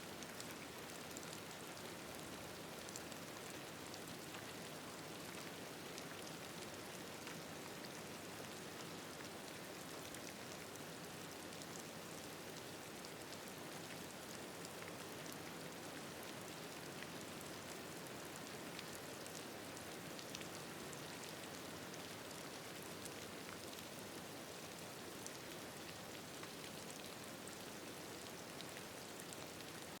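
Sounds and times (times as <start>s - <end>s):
gentle rain pattering: 0.0s - 30.0s.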